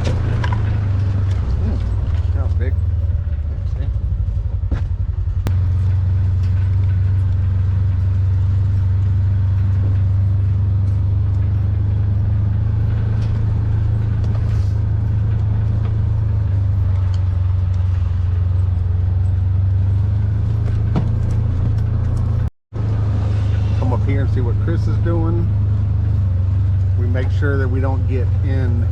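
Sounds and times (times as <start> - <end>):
vehicle engine running: 0.0 - 28.9.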